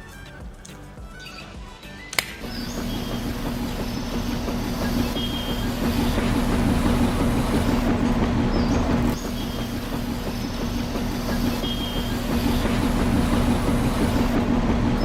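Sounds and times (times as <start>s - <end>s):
click: 0.6s - 0.9s, 2.1s - 9.2s
electric gear motor humming: 2.2s - 14.4s.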